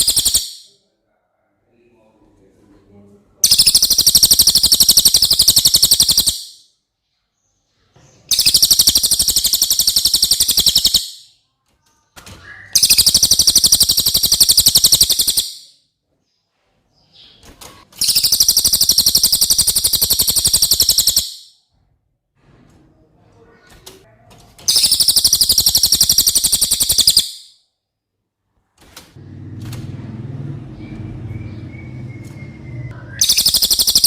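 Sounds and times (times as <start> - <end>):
bird trilling: 0.0 - 0.7, 3.4 - 6.7, 8.3 - 11.3, 12.4 - 15.8, 18.0 - 21.6, 24.7 - 27.5, 30.8 - 34.0.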